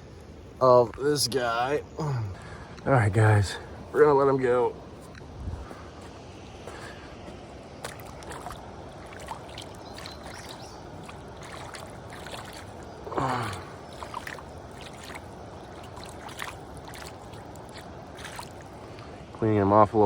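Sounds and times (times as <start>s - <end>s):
small splashes and trickles: 7.6s - 19.4s
low vocal sound: 13.1s - 13.8s.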